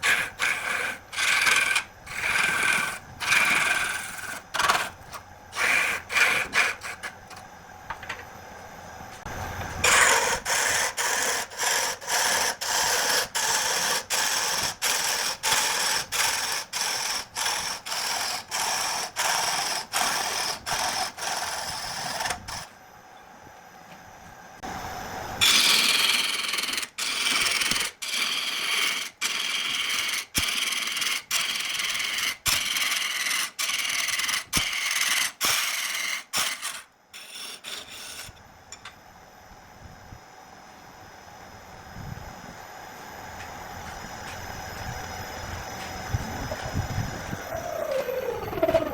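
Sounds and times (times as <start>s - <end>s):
lathe tool scraping spinning wood: 0.0s - 7.2s, 9.8s - 22.7s, 25.4s - 38.3s.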